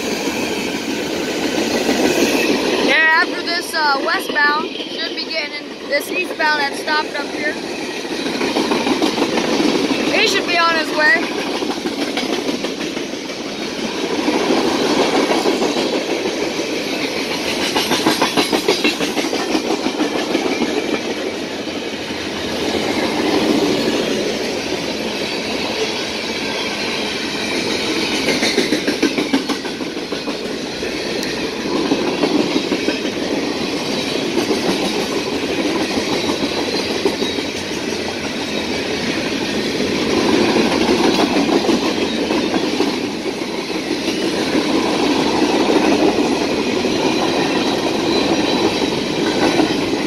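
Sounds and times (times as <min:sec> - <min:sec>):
steel wheels rumbling on rail: 0:00.0 - 0:50.0
wheels clacking over rail joints: 0:00.0 - 0:50.0.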